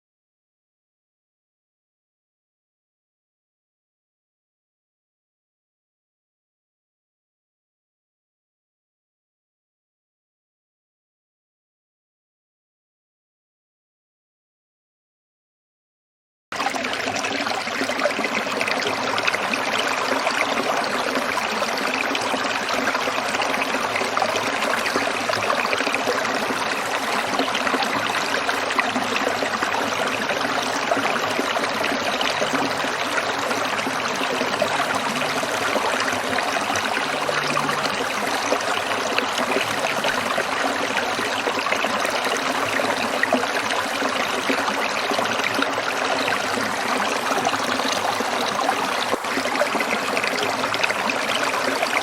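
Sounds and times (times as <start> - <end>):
stream trickling over stones: 16.6 - 52.0.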